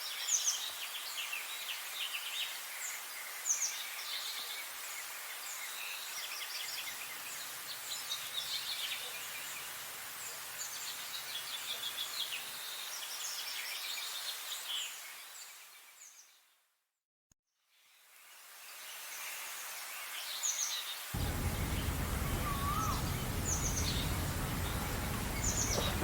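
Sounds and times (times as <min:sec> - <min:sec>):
steady outdoor hiss: 0:00.1 - 0:16.2, 0:17.8 - 0:26.0
songbirds chirping and trilling: 0:21.2 - 0:26.0.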